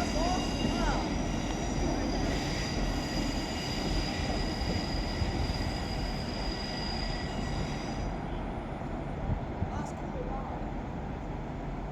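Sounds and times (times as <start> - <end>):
wheels squealing on rail: 0.0 - 8.6
train running: 0.0 - 11.9.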